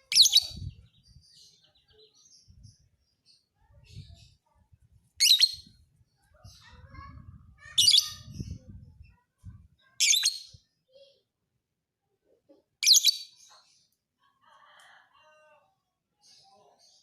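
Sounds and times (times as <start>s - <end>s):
lovebird chattering song: 0.0s - 0.8s, 5.2s - 5.7s.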